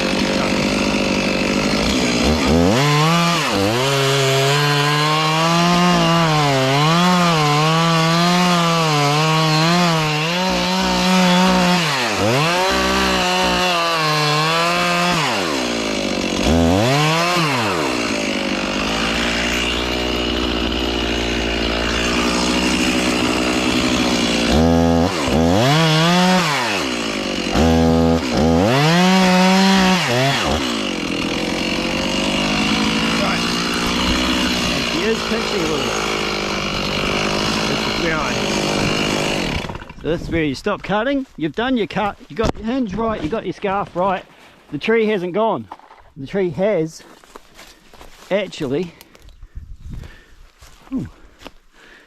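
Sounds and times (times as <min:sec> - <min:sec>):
chainsaw cutting tree trunk: 0:00.0 - 0:41.1.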